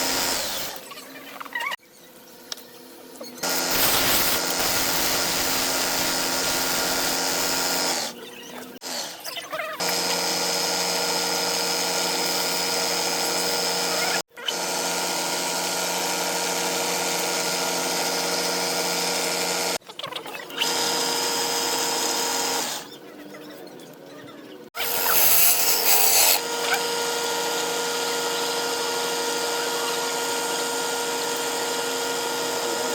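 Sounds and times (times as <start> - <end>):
wood lathe motor whine: 0.0 - 0.8, 3.4 - 8.2, 9.8 - 19.8, 20.6 - 22.9, 24.8 - 32.9.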